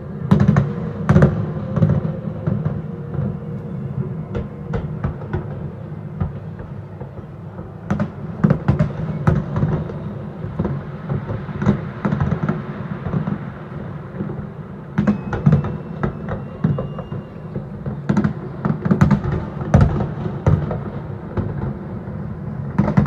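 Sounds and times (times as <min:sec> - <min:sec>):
low rumble: 0:00.0 - 0:08.4
distant fireworks bangs and crackles: 0:00.0 - 0:23.0.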